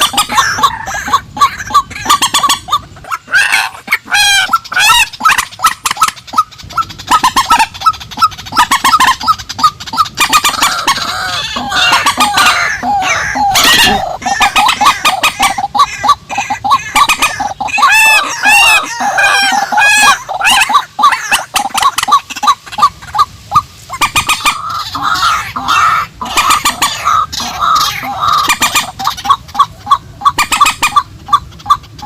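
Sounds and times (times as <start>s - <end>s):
water birds clucking and squawking: 0.0s - 32.0s
loud harsh bird call: 10.2s - 21.8s.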